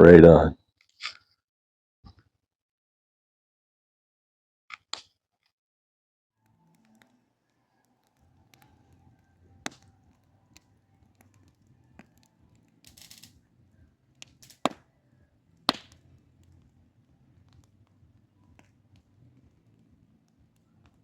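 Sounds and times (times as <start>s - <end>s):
campfire crackling: 6.4s - 21.0s.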